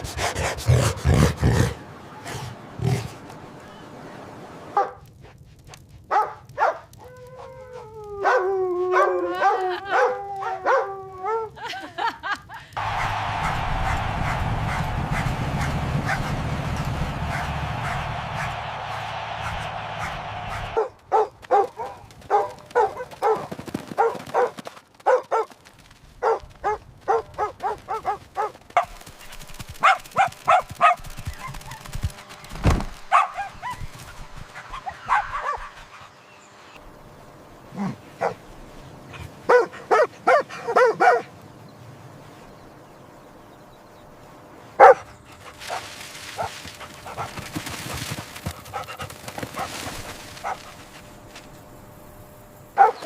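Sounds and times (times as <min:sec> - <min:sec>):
rustling hiss: 0:44.2 - 0:52.7.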